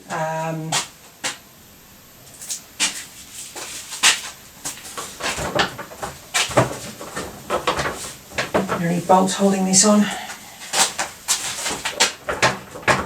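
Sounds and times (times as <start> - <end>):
tools knocking and rattling: 4.0 - 8.9, 10.8 - 13.0.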